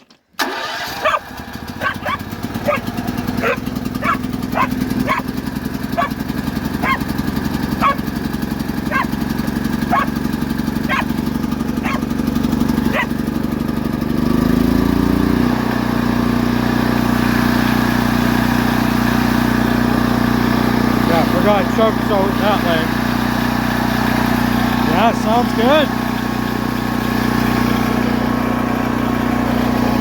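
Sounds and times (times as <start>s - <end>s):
generator engine running: 0.4s - 30.0s
dog barking: 1.0s - 5.3s, 6.0s - 6.2s, 6.8s - 7.1s, 7.8s - 8.1s, 8.9s - 9.2s, 9.9s - 10.2s, 10.9s - 11.2s, 11.8s - 12.1s, 12.9s - 13.2s.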